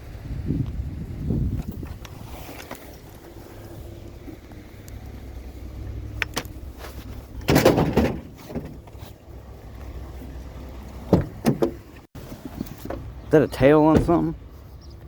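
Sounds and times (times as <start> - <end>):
low steady rumble: 0.0 - 15.0
objects clattering: 6.3 - 9.1.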